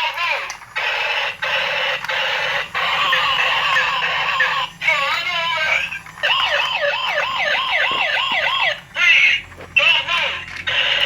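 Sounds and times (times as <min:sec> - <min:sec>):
police siren yelping: 0:00.0 - 0:11.0
wavering siren: 0:00.8 - 0:09.5.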